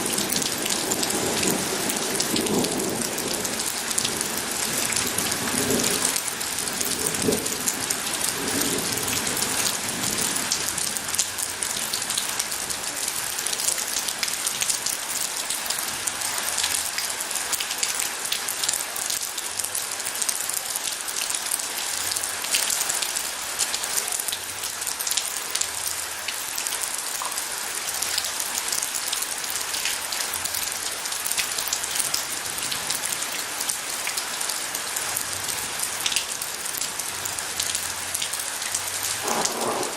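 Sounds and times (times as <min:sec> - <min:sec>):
steady rain falling: 0:00.0 - 0:39.9
low thunder rumble: 0:39.2 - 0:39.9.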